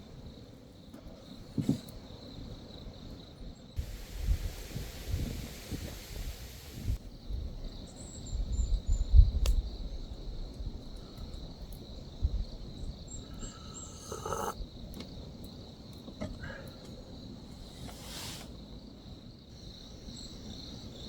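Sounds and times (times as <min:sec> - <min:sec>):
insects chirping: 0:00.0 - 0:21.0
wind rumble on microphone: 0:03.8 - 0:13.4.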